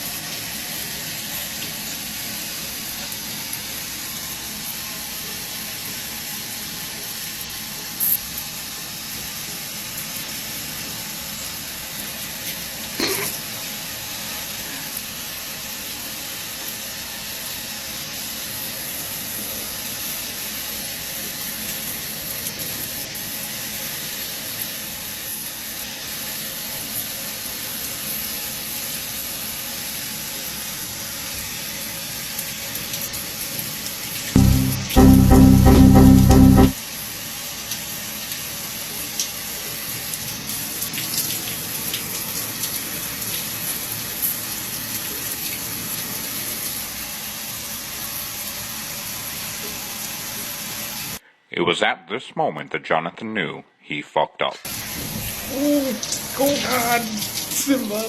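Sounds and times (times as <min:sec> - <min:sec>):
brief sharp sound: 0:34.4 - 0:36.8.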